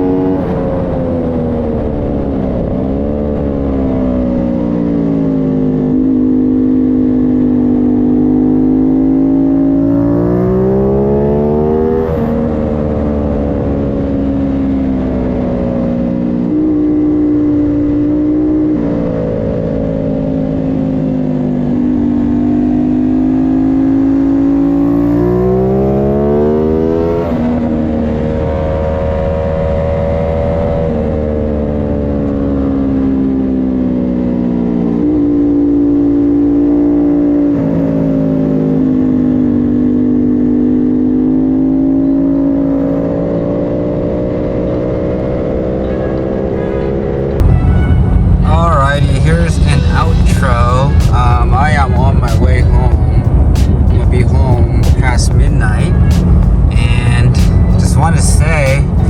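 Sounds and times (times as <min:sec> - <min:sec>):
motorcycle engine revving through gears: 0:00.0 - 0:47.5
wind rush: 0:46.9 - 0:59.0.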